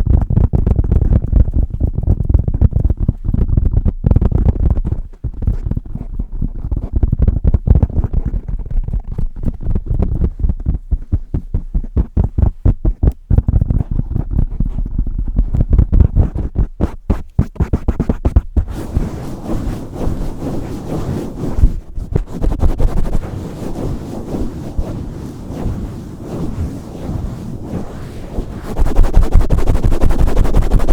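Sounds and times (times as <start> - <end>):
low thuds on microphone cover: 0.0 - 19.2, 21.5 - 23.2
muffled rubbing: 0.8 - 30.9.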